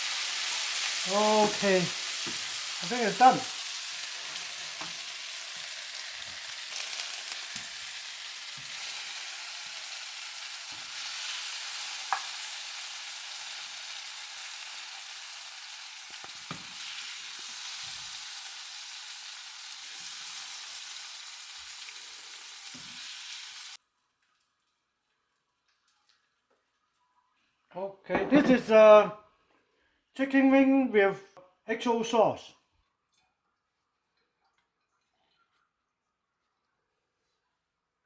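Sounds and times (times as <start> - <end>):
chicken sizzling in a pan: 0.0 - 25.0.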